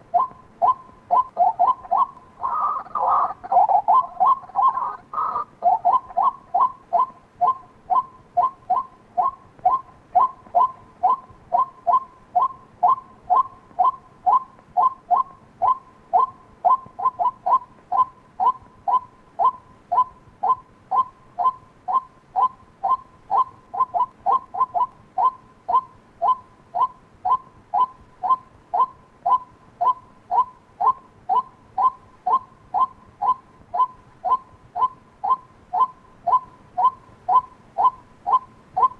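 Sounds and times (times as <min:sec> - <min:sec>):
waterhen calling short sharp notes: 0:00.2 - 0:38.9.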